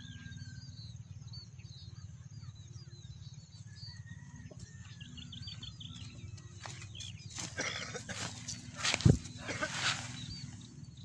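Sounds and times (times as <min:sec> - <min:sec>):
birds chirping: 0:00.0 - 0:11.0
steady low rumble: 0:05.0 - 0:11.0.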